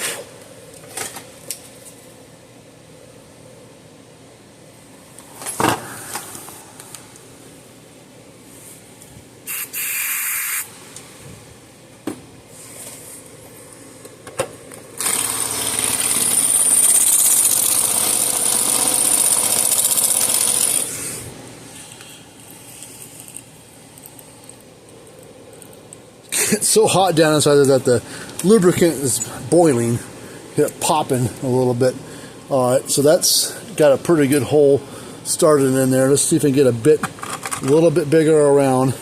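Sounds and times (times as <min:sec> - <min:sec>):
electric drill grinding into metal: 0:15.0 - 0:21.1.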